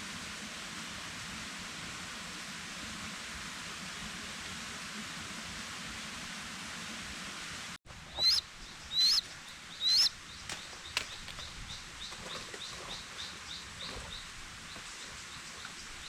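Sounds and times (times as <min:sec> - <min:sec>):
forest background hiss: 0:00.0 - 0:16.0
bird calling: 0:07.9 - 0:14.8
faint bird chirps: 0:08.1 - 0:16.0.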